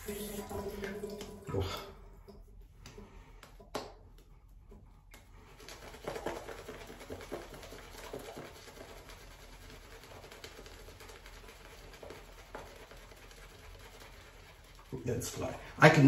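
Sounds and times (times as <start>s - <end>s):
shaving brush whipping lather: 5.2s - 16.0s.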